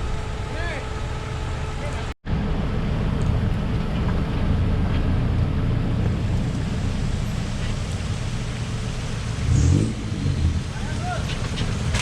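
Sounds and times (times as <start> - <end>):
engine running at low revs: 0.0 - 12.0.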